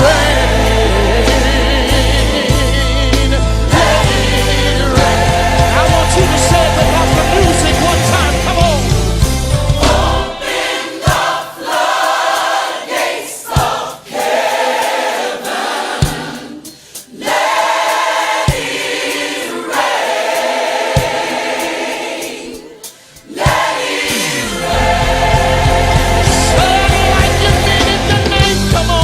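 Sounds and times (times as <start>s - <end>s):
band with bass and drums: 0.0s - 10.4s, 23.5s - 29.0s
choir singing held chords: 0.0s - 29.0s.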